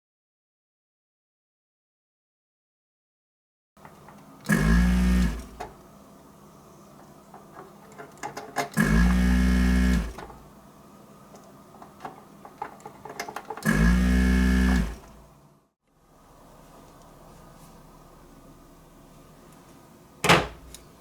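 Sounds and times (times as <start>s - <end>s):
small electric motor humming: 4.4s - 5.8s, 8.8s - 10.4s, 13.6s - 15.2s.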